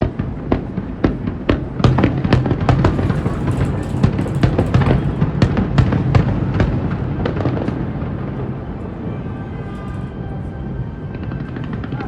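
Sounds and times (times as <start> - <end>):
fireworks bangs and crackle: 0.0 - 9.2
faint music: 6.2 - 12.0.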